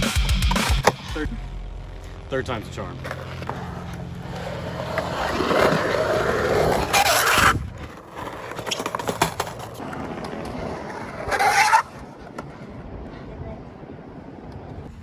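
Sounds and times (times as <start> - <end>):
skateboard wheels rolling on concrete: 1.8 - 15.0
skateboard wheels scraping: 3.0 - 15.0
skateboard clacks: 4.8 - 13.1.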